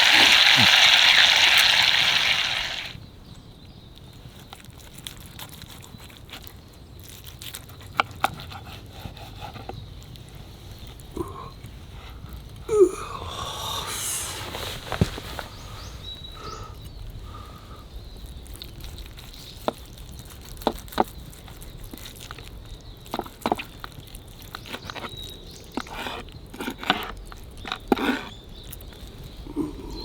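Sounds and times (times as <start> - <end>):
campfire crackling and popping: 0.0 - 3.0
loud sizzling hiss: 0.0 - 3.0.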